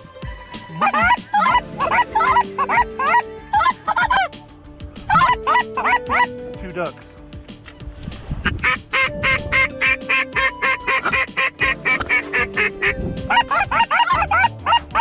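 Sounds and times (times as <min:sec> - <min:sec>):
background music with held notes: 0:00.0 - 0:15.0
duck quacks: 0:00.7 - 0:04.3, 0:05.1 - 0:06.3, 0:08.4 - 0:15.0
goose-like clucks: 0:00.7 - 0:04.4, 0:05.1 - 0:06.3, 0:08.5 - 0:15.0.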